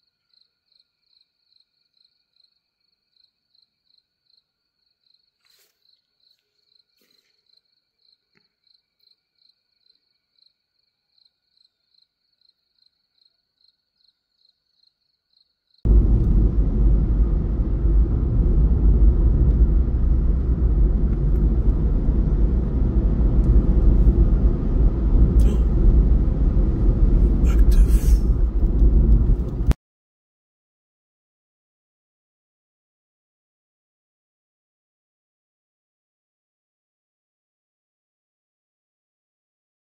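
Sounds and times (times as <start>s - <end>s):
crickets chirping: 0.0s - 16.0s
loud low rumble: 15.9s - 29.8s.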